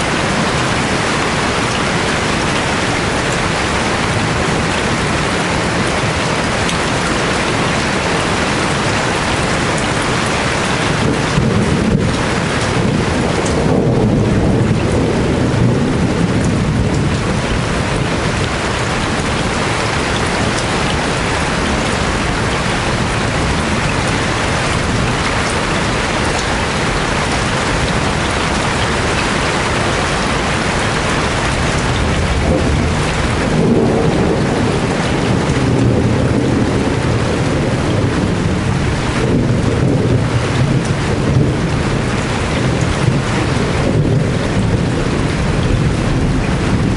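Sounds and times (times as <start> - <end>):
heavy rain falling: 0.0 - 46.9
thunder rolling: 0.1 - 46.9.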